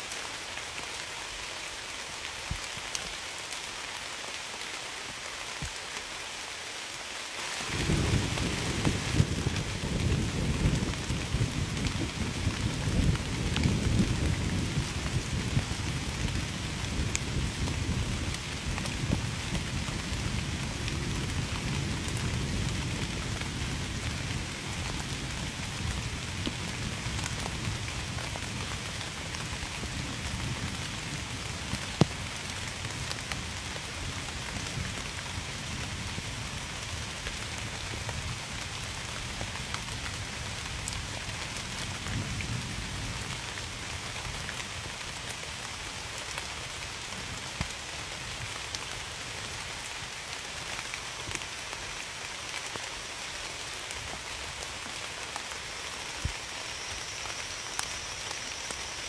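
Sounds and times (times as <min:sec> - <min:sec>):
rain falling: 0:00.0 - 0:59.0
distant thunder rumble: 0:07.6 - 0:15.5.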